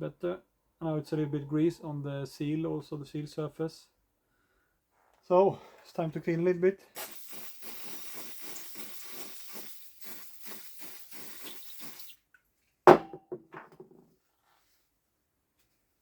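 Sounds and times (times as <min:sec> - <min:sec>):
rhythmic rubbing hiss: 0:07.0 - 0:12.2.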